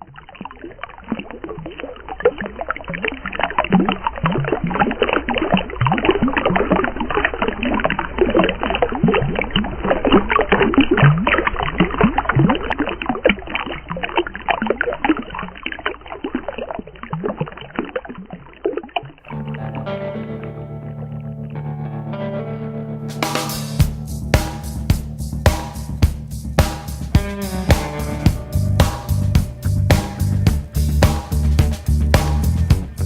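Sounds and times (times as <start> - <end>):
water splashing and gurgling: 0.0 - 19.8
guitar music: 19.3 - 33.0
steady low rumble: 23.2 - 33.0.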